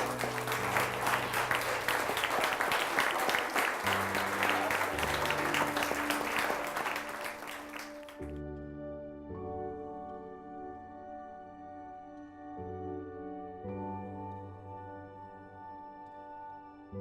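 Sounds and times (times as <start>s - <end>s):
crowd clapping: 0.0s - 8.4s.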